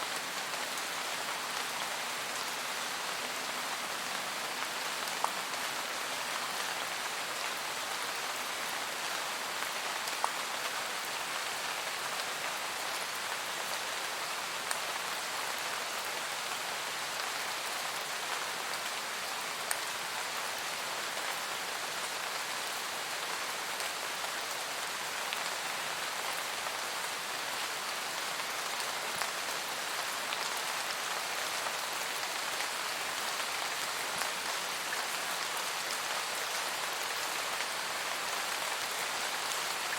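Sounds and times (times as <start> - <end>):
rain falling on foliage: 0.0 - 39.9.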